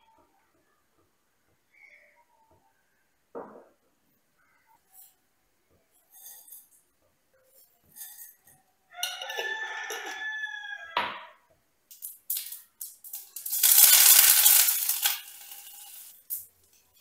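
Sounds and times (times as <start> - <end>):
rooster crowing: 8.9 - 11.4.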